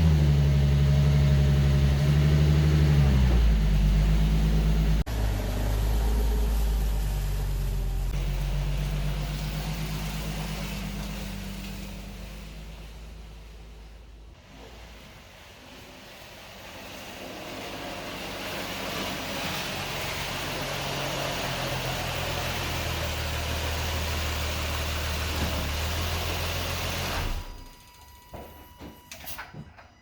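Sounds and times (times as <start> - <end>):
vehicle engine running: 0.0 - 14.6.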